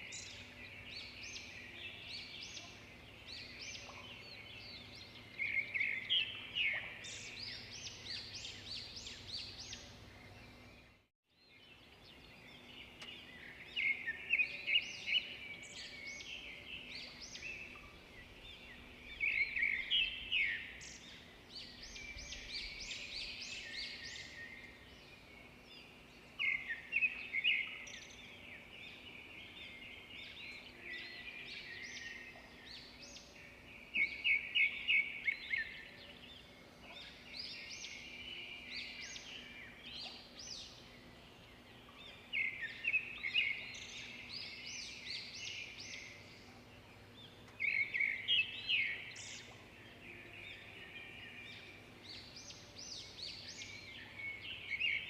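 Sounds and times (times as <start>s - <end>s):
birds chirping and singing: 0.0s - 55.0s
faint background hiss: 0.0s - 55.0s.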